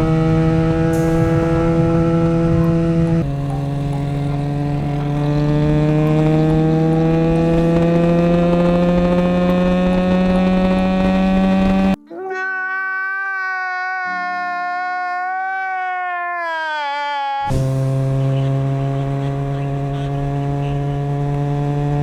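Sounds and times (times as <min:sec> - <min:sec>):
clean pitched tone: 0:00.0 - 0:12.0
motorcycle engine accelerating: 0:00.0 - 0:12.0, 0:17.5 - 0:22.0.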